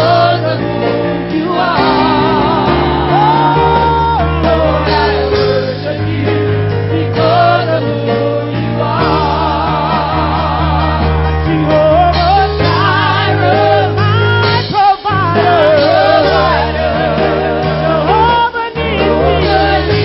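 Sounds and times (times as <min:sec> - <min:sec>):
bass line: 0:00.0 - 0:20.0
choir singing: 0:00.0 - 0:20.0.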